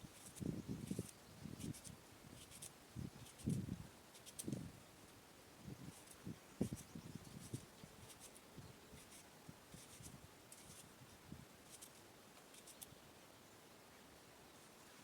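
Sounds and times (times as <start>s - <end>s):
scratching strokes: 0.1s - 4.6s, 5.9s - 10.9s, 11.6s - 12.9s.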